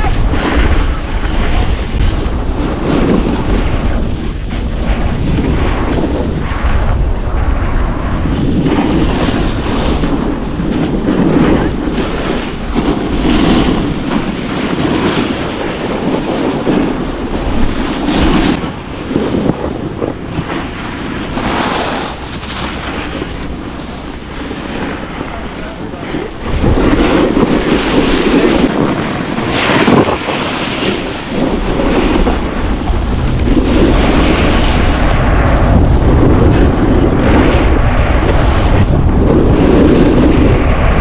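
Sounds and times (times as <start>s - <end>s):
wind buffeting microphone: 0.0s - 41.0s
snowboard edge scraping snow: 12.0s - 34.6s.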